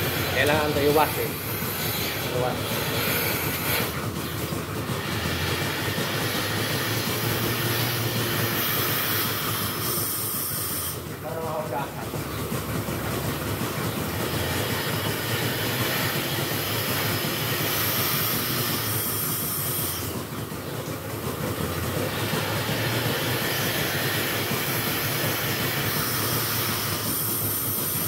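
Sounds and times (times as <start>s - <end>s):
milking machinery humming: 0.0s - 28.0s
machinery hiss: 22.2s - 28.0s.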